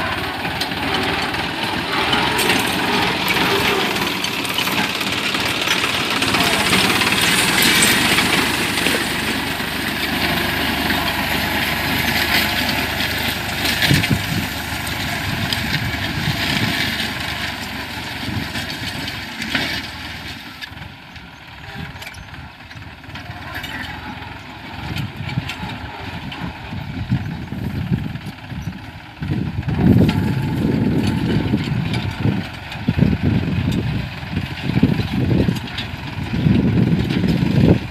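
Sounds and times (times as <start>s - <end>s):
tractor engine running: 0.0s - 37.9s.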